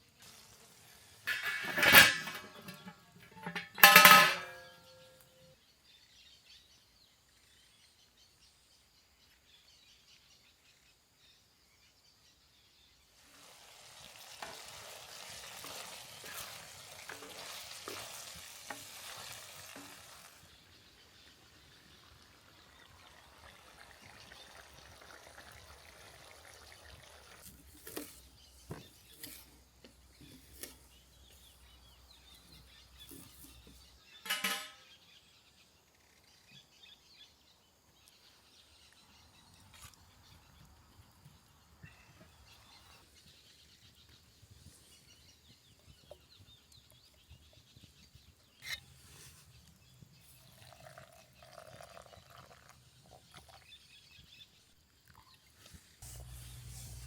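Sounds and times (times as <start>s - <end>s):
food sizzling in skillet: 0.0s - 1.9s, 13.2s - 26.4s, 56.0s - 57.0s.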